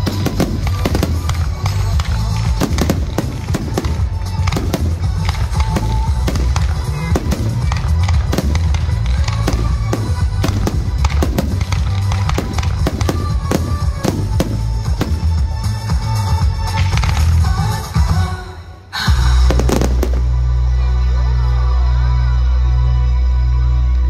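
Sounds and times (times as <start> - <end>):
fireworks bangs: 0.0 - 17.8, 19.3 - 20.6
music playing: 0.0 - 24.0.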